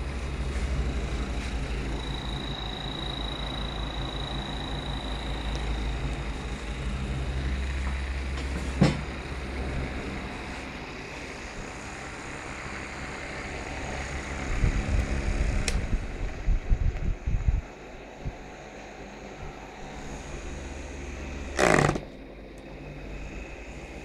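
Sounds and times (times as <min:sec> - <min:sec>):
airflow buffeting microphone: 0:00.0 - 0:24.0
small fan running: 0:00.0 - 0:24.0.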